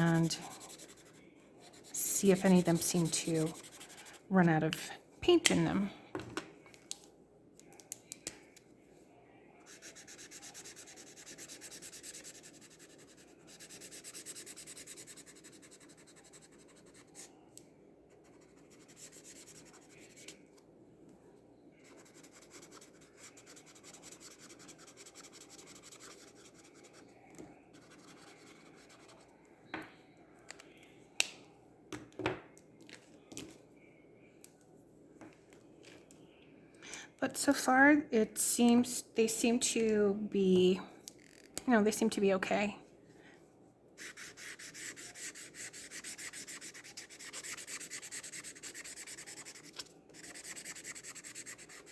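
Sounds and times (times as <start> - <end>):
marker nib scratching on paper: 0.0 - 4.3, 9.7 - 17.3, 18.2 - 20.4, 21.8 - 27.1, 27.7 - 29.2, 44.0 - 51.9.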